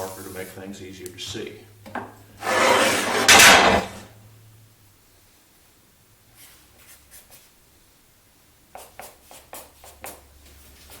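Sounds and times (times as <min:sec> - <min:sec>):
marker scratching on wood board: 0:08.8 - 0:10.2.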